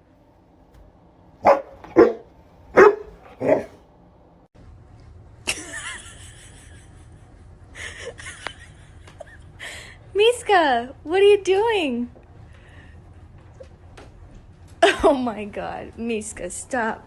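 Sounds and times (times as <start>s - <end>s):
dog barking: 1.4s - 3.8s.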